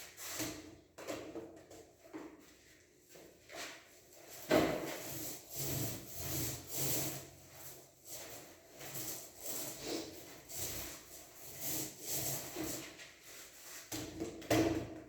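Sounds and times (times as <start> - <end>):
tool scraping putty on wall: 4.4 - 7.4, 8.2 - 13.0.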